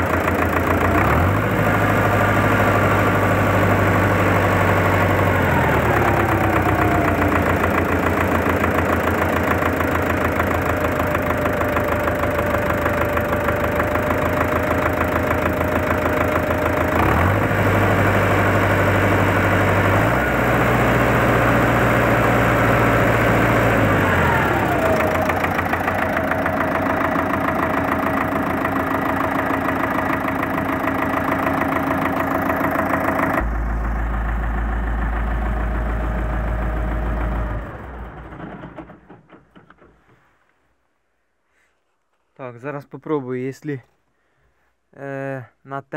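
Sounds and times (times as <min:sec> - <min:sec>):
tractor diesel engine idling and revving: 0:00.0 - 0:39.7.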